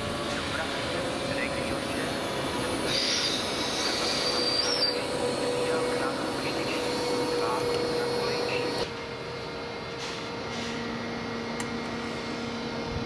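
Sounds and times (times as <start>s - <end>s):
train wheels running on rails: 0.0s - 13.0s
high squeal: 2.5s - 8.8s.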